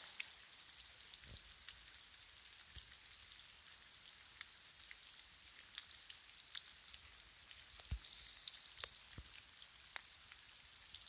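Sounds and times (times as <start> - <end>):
steady high hiss: 0.0 - 1.8.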